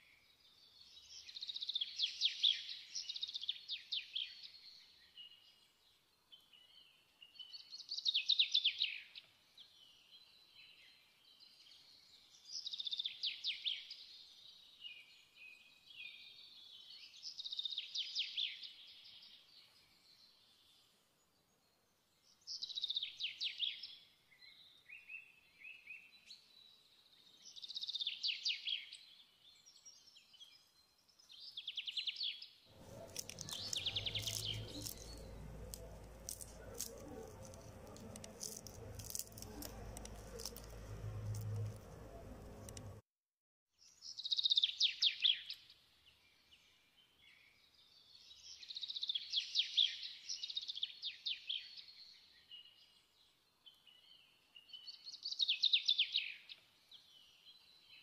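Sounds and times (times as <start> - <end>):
songbird singing: 0.0 - 43.0, 43.8 - 58.0
steady low hum: 32.7 - 43.0.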